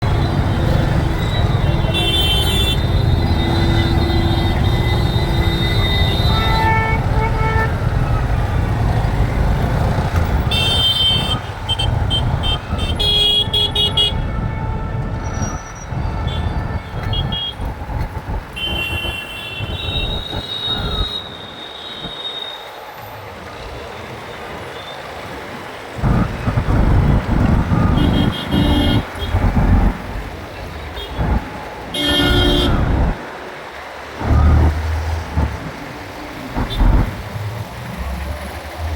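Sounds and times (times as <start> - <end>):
vehicle horns honking: 0.0 - 17.8, 18.5 - 22.6, 26.0 - 30.0, 30.9 - 33.2
motorbike engine and road rumble: 0.0 - 21.2, 23.4 - 38.9.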